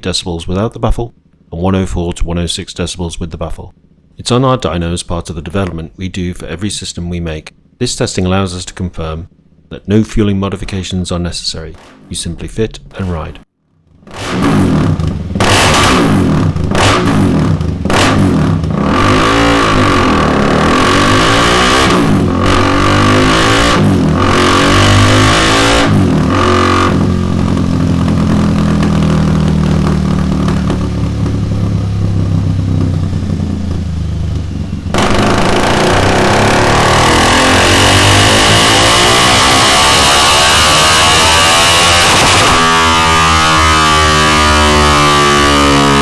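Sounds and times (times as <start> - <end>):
motorcycle engine revving: 10.5 - 46.0.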